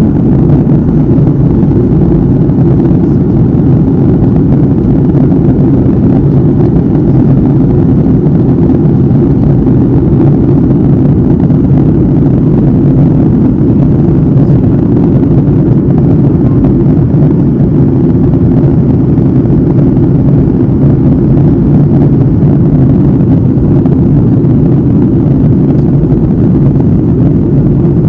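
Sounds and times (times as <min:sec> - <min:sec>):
jet cabin engine roar: 0:00.0 - 0:28.0.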